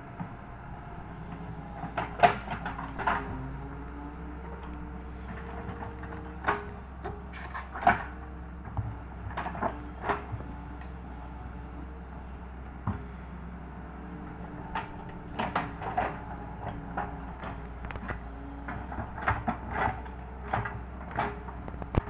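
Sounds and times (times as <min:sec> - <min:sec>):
excavator diesel engine running: 0:00.0 - 0:22.0
excavator bucket clanks: 0:01.2 - 0:03.6, 0:04.4 - 0:11.0, 0:14.0 - 0:22.0.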